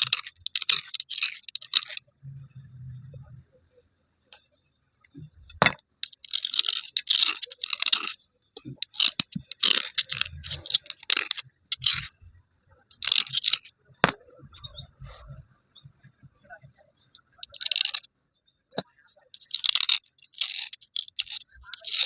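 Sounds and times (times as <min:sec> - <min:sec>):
slate pencils crunching and scraping: 0:00.0 - 0:02.0, 0:05.5 - 0:12.1, 0:12.9 - 0:14.2, 0:17.4 - 0:18.1, 0:19.3 - 0:22.0.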